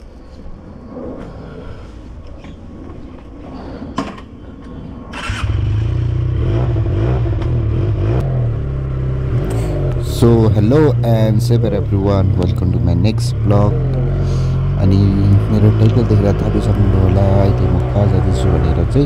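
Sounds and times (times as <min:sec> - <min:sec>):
motorcycle engine starting and idling: 0:05.1 - 0:19.0.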